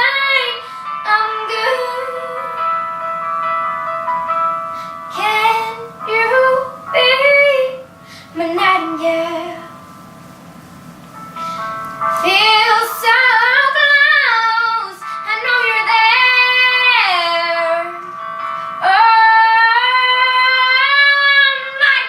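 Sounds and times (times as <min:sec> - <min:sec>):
woman singing: 0:00.0 - 0:02.7, 0:05.1 - 0:09.7, 0:12.1 - 0:18.1, 0:18.8 - 0:22.0
instrumental backing track: 0:00.0 - 0:22.0.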